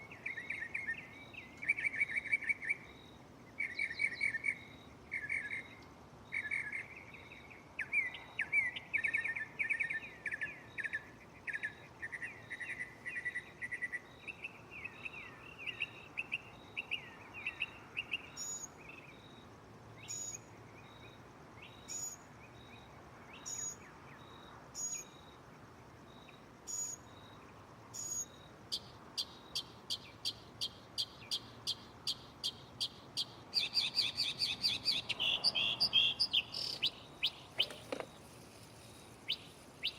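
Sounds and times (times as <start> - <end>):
mockingbird singing: 28.0 - 38.2, 39.2 - 39.9.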